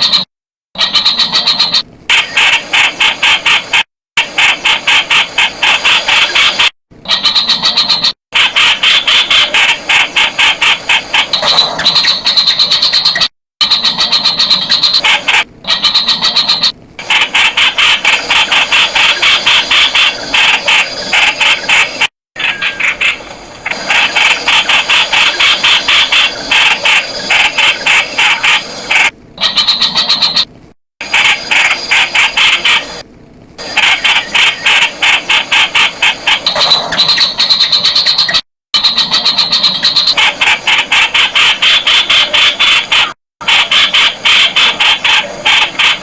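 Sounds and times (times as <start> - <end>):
bird rapid chatter: 0.0 - 33.0, 33.6 - 46.0.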